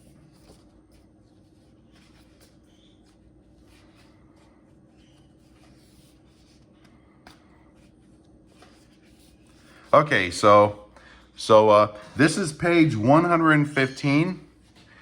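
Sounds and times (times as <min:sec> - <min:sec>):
paper pages leafed through: 0:00.0 - 0:10.3.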